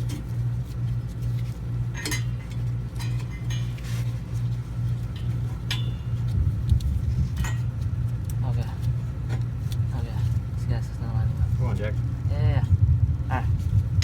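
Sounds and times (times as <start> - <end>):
low pulsing hum: 0.0 - 14.0
metallic clinks and taps: 1.9 - 4.3, 5.0 - 6.8, 7.4 - 7.7.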